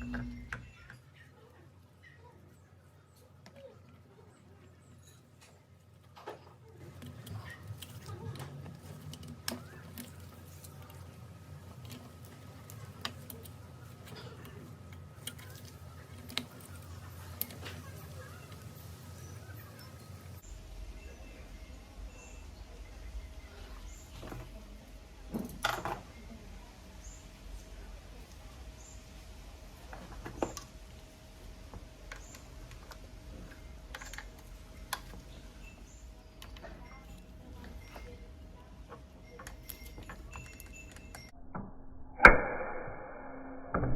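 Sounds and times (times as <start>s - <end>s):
faint high chirp: 0.0s - 5.6s, 16.6s - 24.5s, 33.3s - 41.4s
steady low hum: 0.0s - 43.9s.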